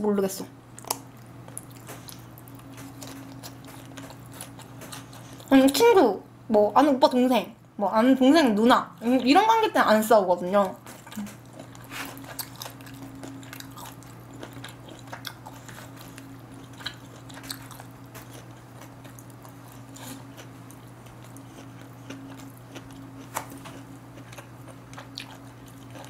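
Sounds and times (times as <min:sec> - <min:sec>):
low electrical hum: 0:00.0 - 0:26.0
person chewing food: 0:00.7 - 0:05.5, 0:10.8 - 0:26.0.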